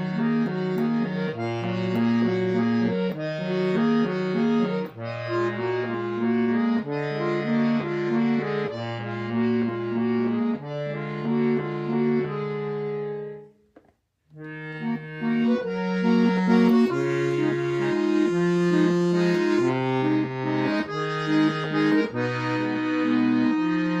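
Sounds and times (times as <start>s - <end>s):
accordion playing chords: 0.0s - 13.7s, 14.3s - 24.0s.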